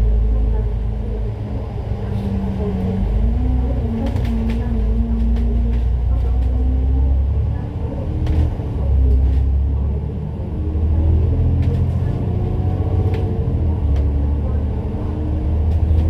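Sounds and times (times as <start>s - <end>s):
bus engine rumbling and whining: 0.0s - 16.0s.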